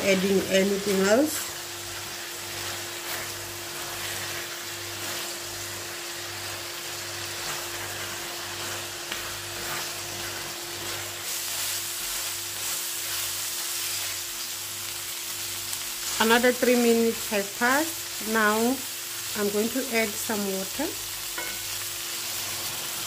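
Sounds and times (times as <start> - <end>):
food sizzling in a wok: 0.0 - 23.0
spatula scraping a wok: 0.2 - 14.4, 21.3 - 23.0.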